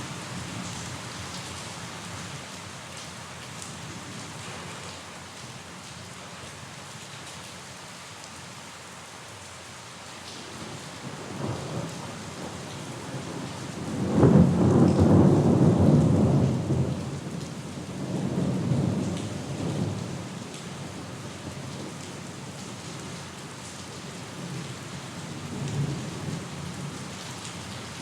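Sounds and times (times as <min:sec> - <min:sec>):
steady rain: 0:00.0 - 0:28.0
thunder rumbling: 0:13.2 - 0:20.3.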